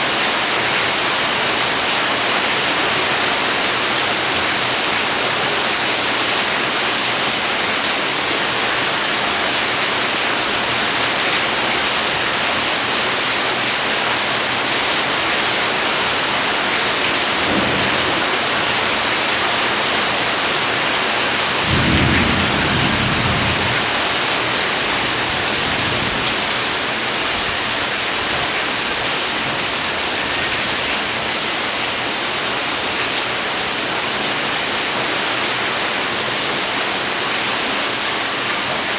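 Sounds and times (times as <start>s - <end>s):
heavy rain falling: 0.1s - 38.9s
thunder rumbling: 16.5s - 27.8s.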